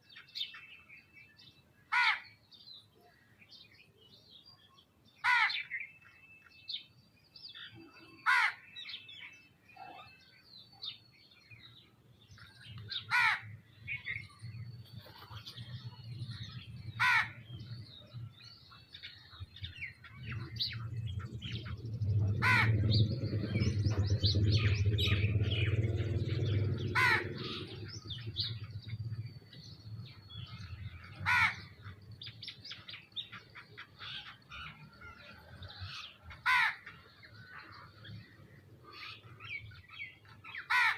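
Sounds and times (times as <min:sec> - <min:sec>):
small birds chirping: 0:00.0 - 0:40.9
low rumble: 0:13.6 - 0:32.4.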